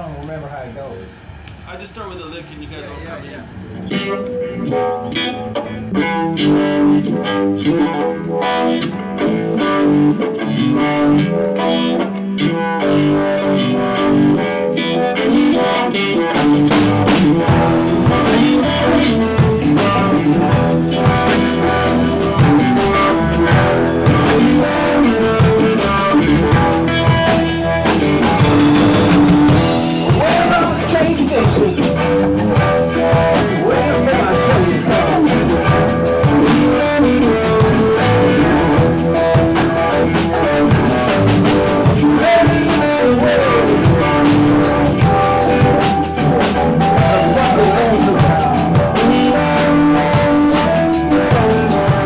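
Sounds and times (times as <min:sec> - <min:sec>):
blues guitar lick: 0:03.8 - 0:52.0
band with drums: 0:16.3 - 0:52.0.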